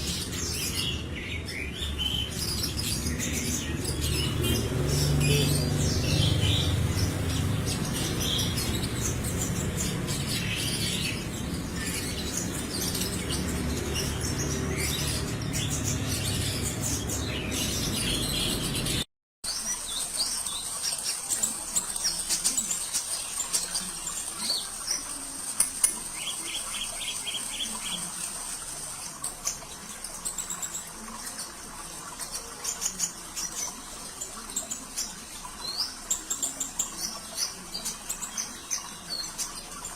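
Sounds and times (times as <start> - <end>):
trickling water: 19.4 - 39.9.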